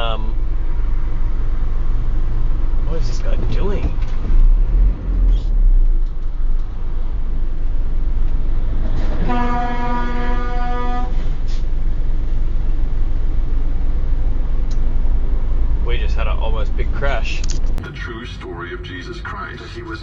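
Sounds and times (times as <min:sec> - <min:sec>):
road and engine rumble in vehicle: 0:00.0 - 0:20.0
vehicle horn blast: 0:09.2 - 0:11.2.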